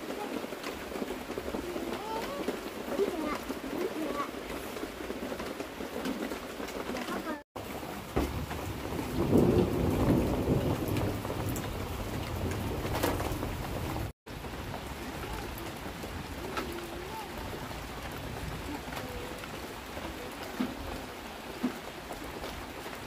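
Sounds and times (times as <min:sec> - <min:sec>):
steady rain falling: 0:00.0 - 0:23.0
low rumble of thunder: 0:07.6 - 0:21.5.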